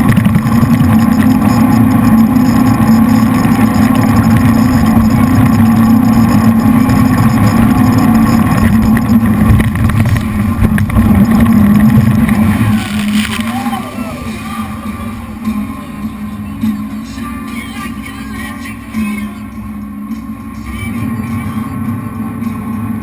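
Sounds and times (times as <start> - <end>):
boat engines droning: 0.0 - 23.0
rushing water: 6.7 - 15.5.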